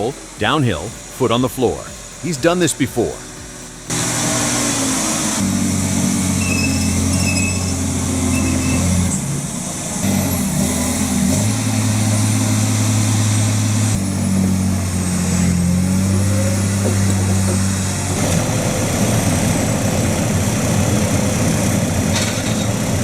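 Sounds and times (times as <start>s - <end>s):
truck diesel engine at full throttle: 0.0s - 23.0s
faint short high squeaks: 6.3s - 9.2s.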